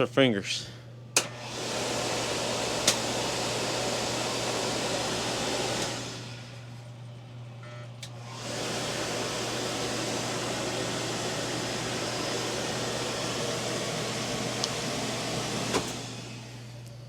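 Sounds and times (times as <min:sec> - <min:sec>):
clothes dryer switch click: 0:01.1 - 0:01.4, 0:02.8 - 0:03.0
clothes dryer drum whooshing: 0:01.2 - 0:06.7, 0:08.2 - 0:16.8.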